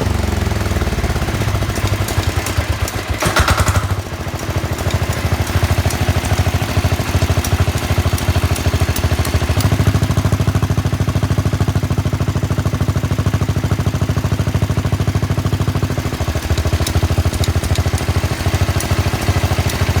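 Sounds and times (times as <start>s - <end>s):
diesel tractor engine running: 0.0s - 20.0s.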